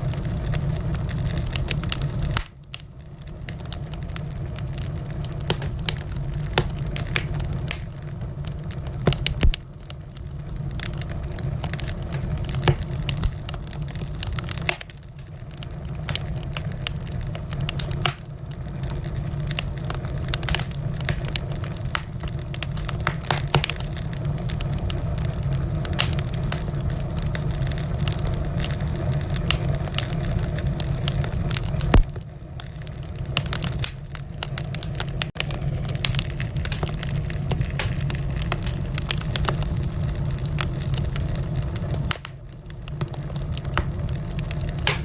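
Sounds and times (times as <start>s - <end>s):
wood fire crackling: 0.0s - 45.0s
loud fire pop: 2.2s - 2.8s, 9.0s - 9.7s, 11.7s - 13.6s, 17.7s - 18.3s, 23.0s - 24.0s, 31.8s - 32.3s, 35.3s - 39.6s, 43.0s - 45.0s.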